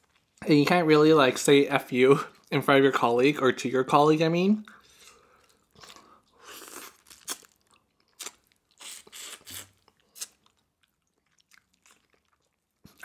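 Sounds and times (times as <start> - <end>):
chewing mouth noise: 4.6 - 13.0
prawn shell crunches: 5.7 - 10.6.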